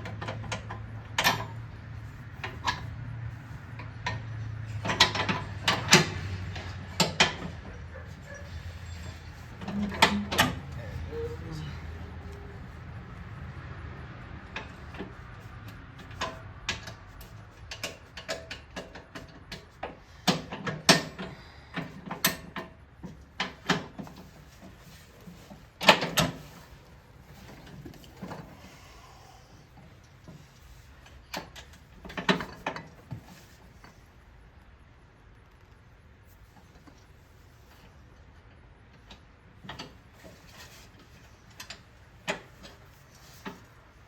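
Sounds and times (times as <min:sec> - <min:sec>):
metal clicks and clanks of tools: 0:00.0 - 0:01.6, 0:03.8 - 0:10.9, 0:14.5 - 0:26.7.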